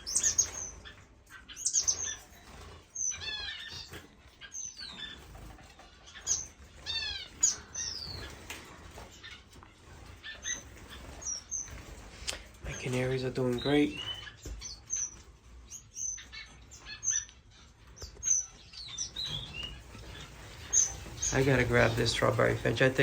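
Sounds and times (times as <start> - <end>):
finches chirping and calling: 0.0 - 23.0
wing flutters: 19.2 - 23.0.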